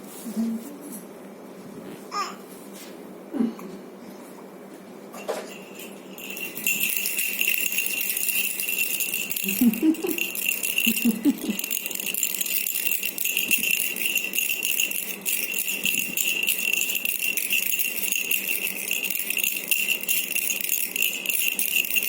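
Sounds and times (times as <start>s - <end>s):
jingling toy rattle shaken: 5.2s - 22.0s.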